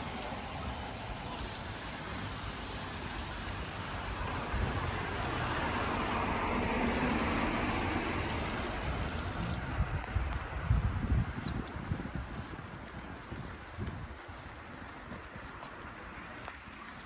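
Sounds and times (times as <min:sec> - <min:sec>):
vehicle passing: 0:00.0 - 0:10.8
wind buffeting microphone: 0:00.0 - 0:17.0.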